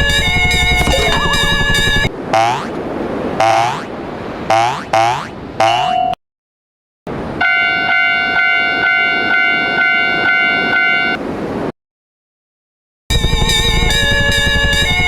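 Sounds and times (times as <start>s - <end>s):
electronic crossing bell pulsing: 0.0s - 2.1s, 13.1s - 15.0s.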